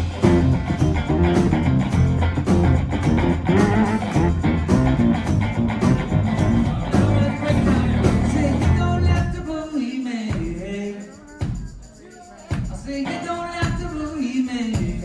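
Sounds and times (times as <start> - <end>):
live pop-rock band playing: 0.0 - 9.4
sliding vocal line: 6.4 - 15.0.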